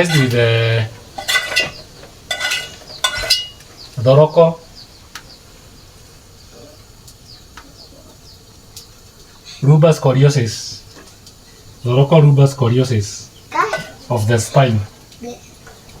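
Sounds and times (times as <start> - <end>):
metal utensils and dishes clinking: 0.0 - 3.7, 13.6 - 14.7
faint ticks: 6.8 - 7.8, 8.7 - 9.5, 10.9 - 11.6.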